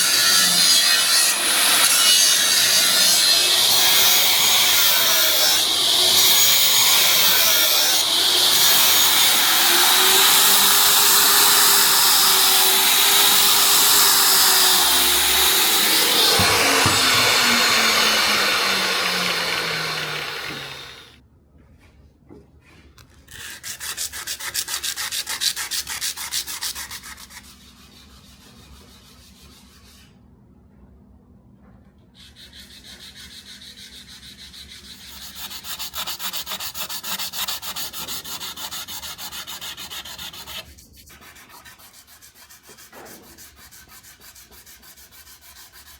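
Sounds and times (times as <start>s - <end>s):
power sander running: 3.4s - 21.2s.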